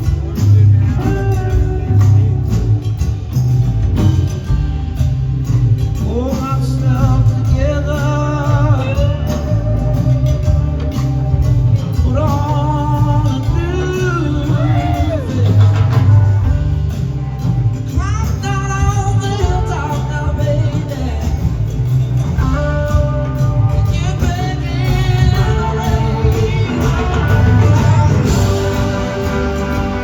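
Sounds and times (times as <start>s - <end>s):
rock band jamming: 0.0s - 30.0s
sliding high lead guitar line: 8.6s - 30.0s.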